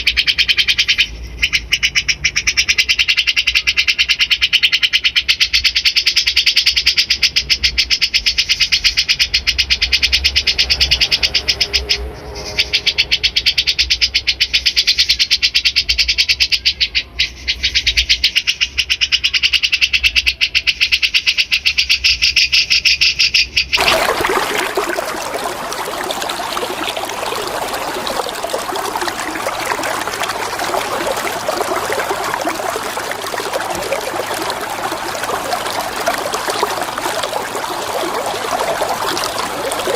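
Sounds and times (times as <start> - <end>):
running water: 23.8 - 39.9.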